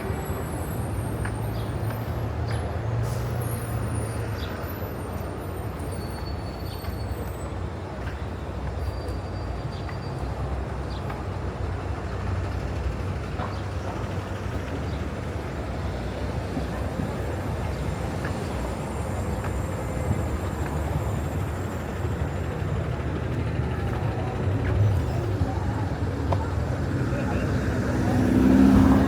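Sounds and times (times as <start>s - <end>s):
vehicle traffic noise: 0.0s - 29.0s
heavy vehicle engine hum: 10.2s - 29.0s.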